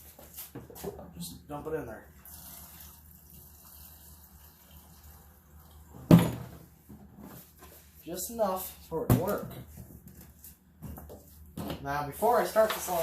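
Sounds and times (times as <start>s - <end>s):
fuel trickling into tank: 2.2s - 5.9s.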